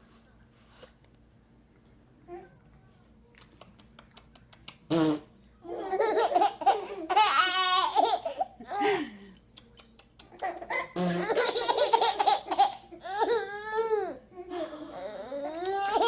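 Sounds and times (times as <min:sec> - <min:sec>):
babies laughing: 0:05.7 - 0:08.9, 0:10.4 - 0:14.2, 0:15.0 - 0:16.0.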